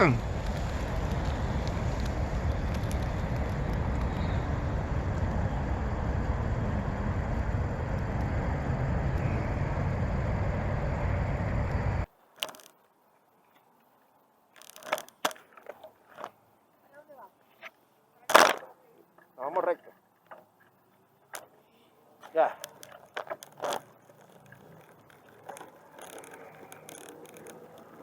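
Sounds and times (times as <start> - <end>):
wind rumble on microphone: 0.0 - 12.1
faint clicks and knocks: 22.2 - 28.0.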